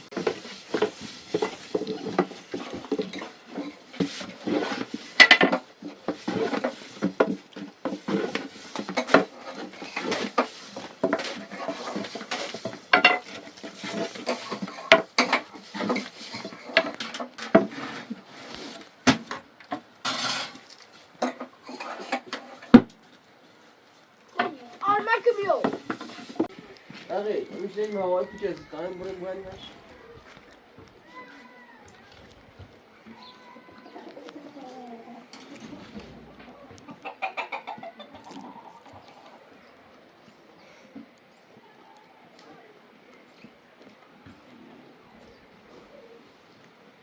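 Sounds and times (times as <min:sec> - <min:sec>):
pots and dishes clattering: 0:00.0 - 0:18.2, 0:19.1 - 0:22.9.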